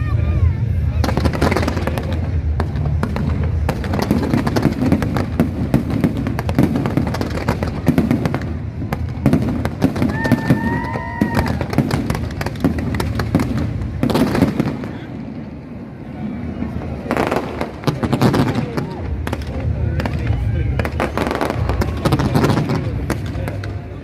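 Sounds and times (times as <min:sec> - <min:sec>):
fireworks crackling and popping: 0:00.0 - 0:24.0
low rumble: 0:00.0 - 0:24.0
firework whistle: 0:08.9 - 0:12.5.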